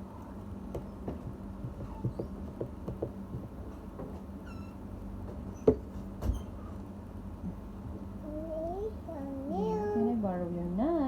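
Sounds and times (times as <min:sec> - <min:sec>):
sharp knocks: 0:00.7 - 0:04.2.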